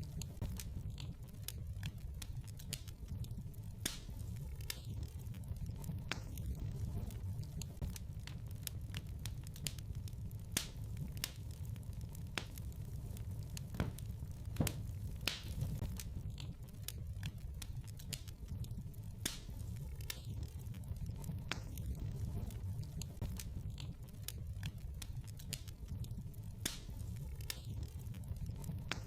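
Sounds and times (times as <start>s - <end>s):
low rumble of flames: 0.0s - 29.0s
wood fire crackling and popping: 0.0s - 29.0s.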